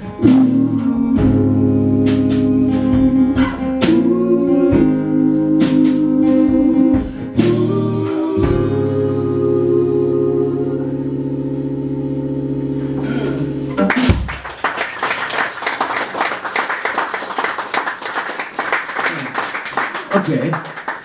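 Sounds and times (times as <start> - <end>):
audience applause: 13.8 - 21.0.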